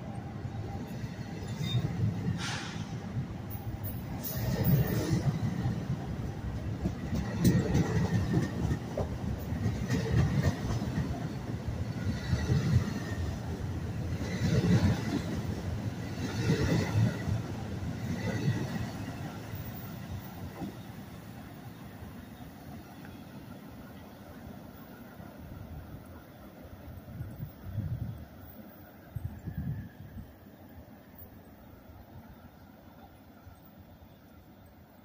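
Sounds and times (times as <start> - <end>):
train wheels clacking over rails: 1.0 - 21.1.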